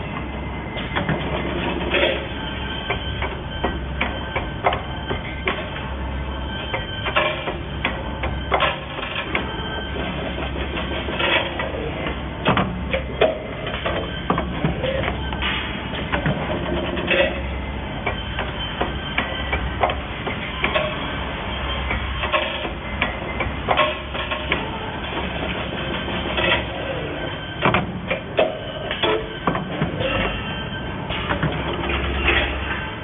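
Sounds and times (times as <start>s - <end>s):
steady low hum: 0.0s - 33.0s
machine clicks and knocks: 27.6s - 30.0s.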